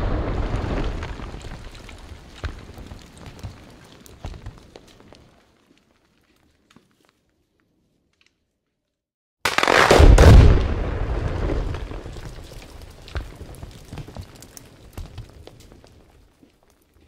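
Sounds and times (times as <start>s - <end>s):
rock blast boom with rumble: 0.0s - 3.0s, 9.9s - 12.6s.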